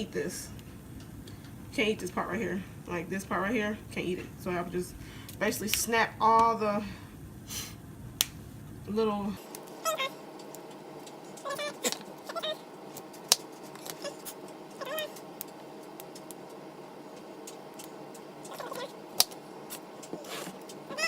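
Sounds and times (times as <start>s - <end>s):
short pitched calls: 9.8s - 10.3s, 11.3s - 12.7s, 13.9s - 15.2s, 18.4s - 19.1s, 20.1s - 21.0s.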